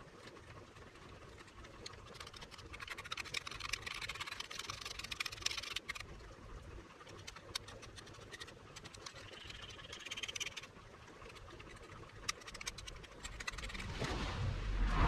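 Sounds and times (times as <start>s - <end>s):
low rumble: 13.6s - 15.0s.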